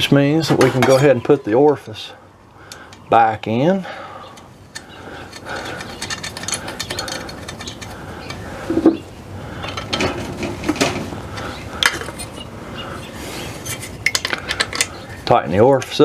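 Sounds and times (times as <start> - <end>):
metal tools clinking and scraping: 0.4 - 1.6, 4.2 - 15.4.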